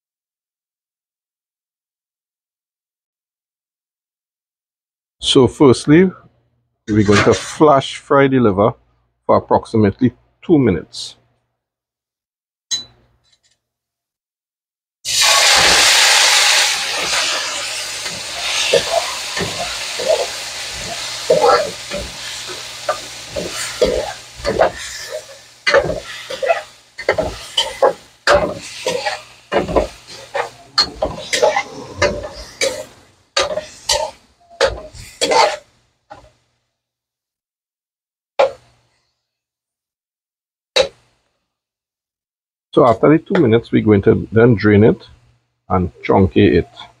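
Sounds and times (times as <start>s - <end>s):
metal spoon scraping pan: 6.9s - 7.6s, 18.0s - 36.3s
meat sizzling in hot oil: 15.1s - 36.3s.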